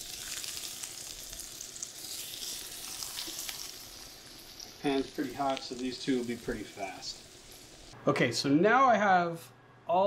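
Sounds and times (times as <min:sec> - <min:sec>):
fish sizzling in hot oil: 0:00.0 - 0:08.0.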